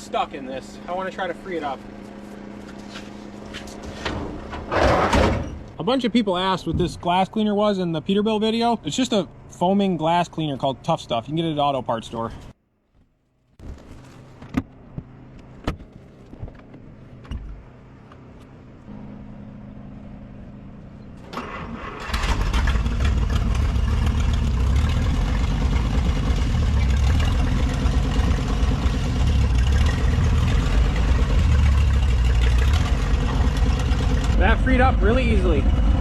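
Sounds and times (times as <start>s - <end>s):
car engine starting and running: 12.9s - 36.0s.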